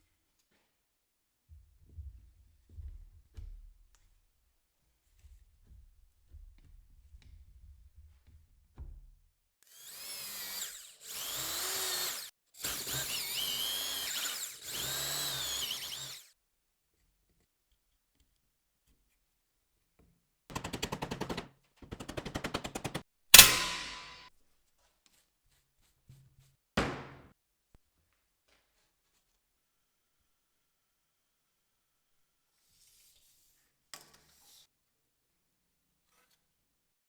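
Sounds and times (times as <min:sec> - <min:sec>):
high-pitched power tool: 0:09.7 - 0:16.2, 0:23.4 - 0:24.2
sharp ringing strike: 0:23.4 - 0:24.2.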